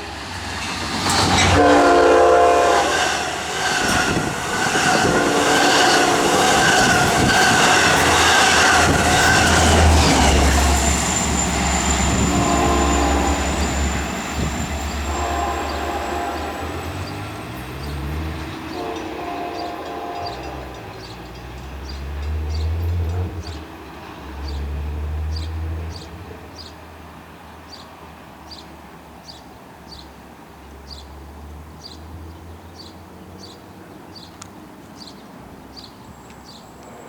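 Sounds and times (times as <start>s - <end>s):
diesel train rumble: 0.0s - 37.0s.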